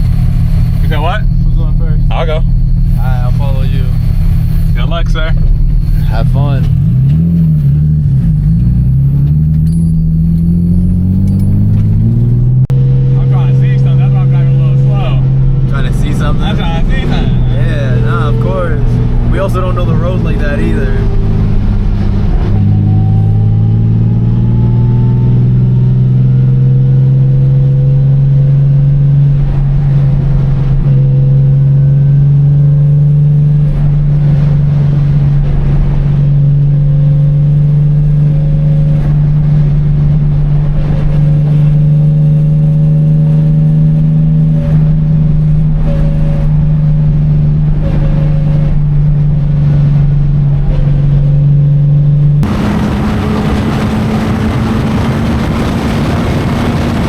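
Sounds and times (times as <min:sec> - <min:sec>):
car engine droning: 0:00.0 - 0:57.0.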